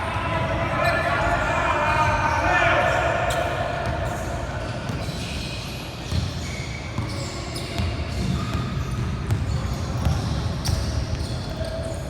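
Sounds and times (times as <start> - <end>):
background hubbub in hall: 0.0 - 12.0
basketball bouncing on court: 3.3 - 12.0.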